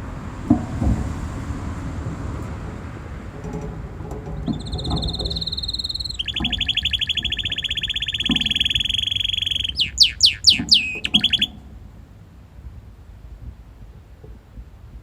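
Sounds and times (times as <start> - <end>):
canary singing trills: 4.3 - 11.6.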